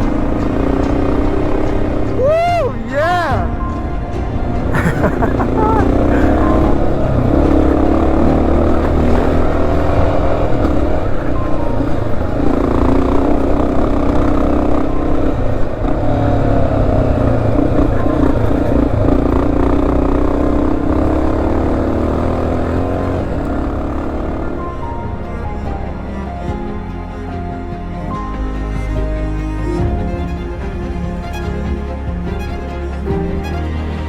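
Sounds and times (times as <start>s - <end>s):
motorcycle engine revving: 0.0s - 25.2s.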